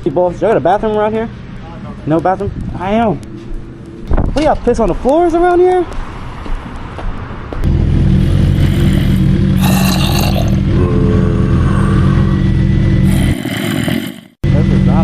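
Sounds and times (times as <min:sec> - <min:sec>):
motorcycle engine running: 0:07.6 - 0:15.0.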